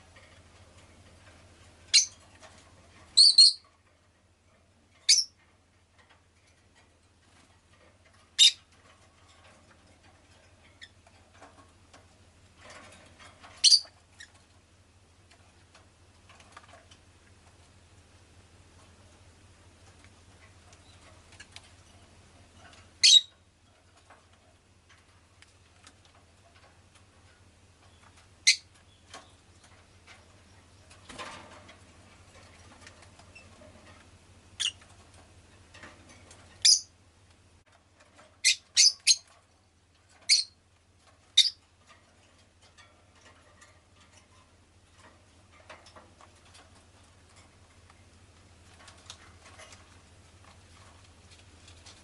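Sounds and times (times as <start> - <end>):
faint low hum: 0.0 - 52.0
lovebird chirping: 1.9 - 2.1, 3.2 - 3.6, 5.1 - 5.3, 8.4 - 8.6, 13.6 - 13.9, 23.0 - 23.3, 28.4 - 29.0, 34.6 - 34.8, 36.6 - 36.9, 38.4 - 39.2, 40.3 - 40.6, 41.4 - 41.6.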